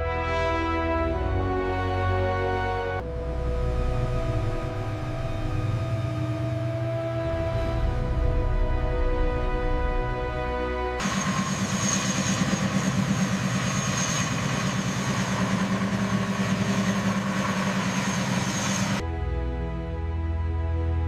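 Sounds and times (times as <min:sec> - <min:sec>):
music: 0:00.0 - 0:11.8, 0:18.3 - 0:21.0
helicopter rotor pulsing: 0:03.0 - 0:19.0.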